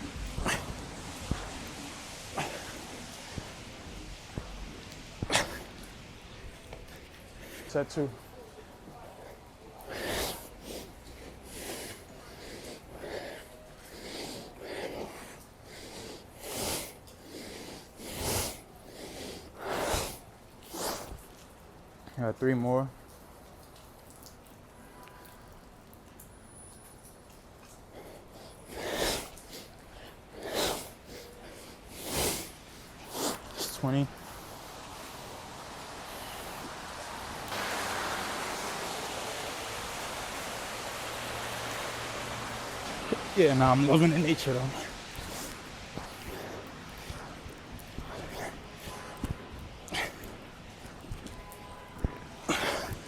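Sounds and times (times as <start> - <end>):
light rain hissing: 0.0 - 53.0
man breathing hard: 52.4 - 53.0.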